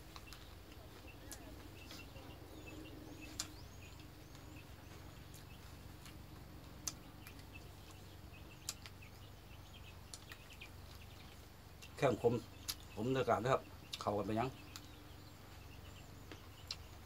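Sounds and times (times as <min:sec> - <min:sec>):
low steady hum: 0:00.0 - 0:17.0
small birds chirping: 0:00.0 - 0:17.0.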